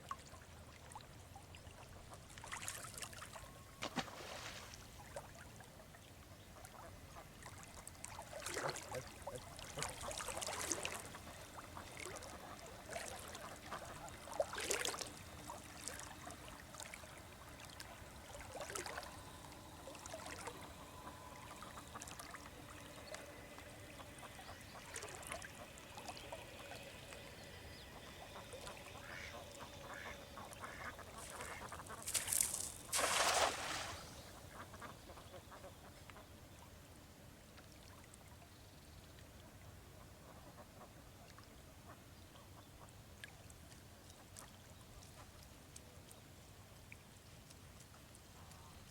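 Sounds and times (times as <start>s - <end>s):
river water running: 0.1s - 35.2s
ducks quacking faintly: 0.2s - 36.7s
water splashes: 2.3s - 5.6s, 7.4s - 34.8s.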